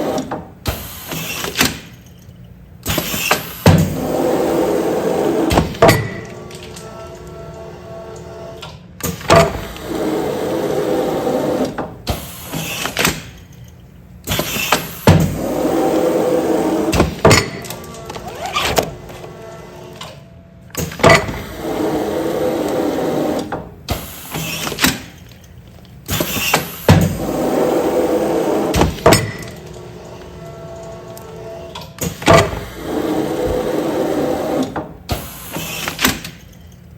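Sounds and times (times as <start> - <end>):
pneumatic rushing noise: 0.0 - 1.9, 2.8 - 6.0, 9.0 - 13.3, 14.2 - 17.5, 20.8 - 25.2, 26.0 - 29.5, 32.0 - 36.4.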